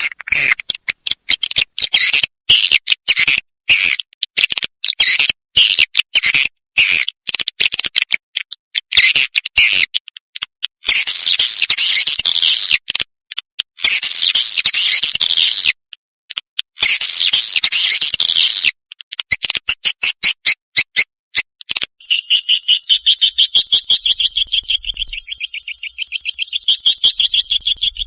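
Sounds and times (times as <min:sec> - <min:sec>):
dense bird chattering: 0:00.0 - 0:03.8, 0:22.0 - 0:28.0
swiftlet chirps and twitters: 0:22.0 - 0:28.0.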